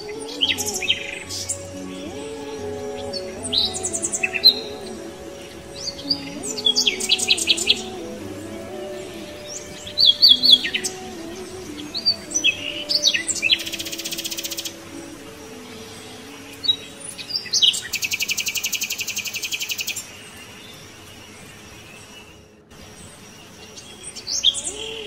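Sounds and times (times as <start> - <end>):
bird trill: 0.0 - 25.0
small birds chirping: 0.0 - 25.0.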